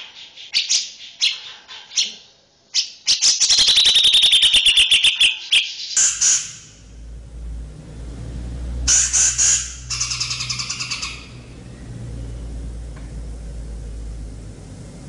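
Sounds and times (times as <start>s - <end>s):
low hum: 6.6s - 15.0s
songbird chips and trill: 8.9s - 11.3s
soft bird calls: 8.9s - 12.5s.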